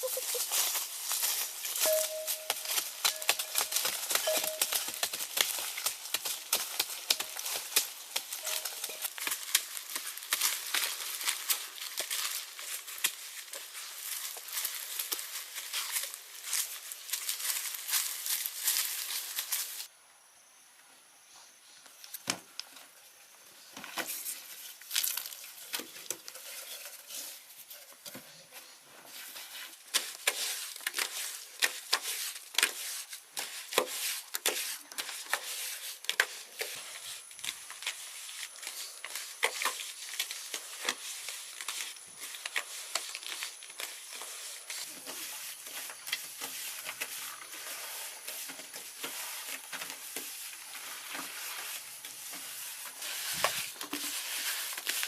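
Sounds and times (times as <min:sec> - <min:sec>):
crackling and popping: 0:00.0 - 0:19.9.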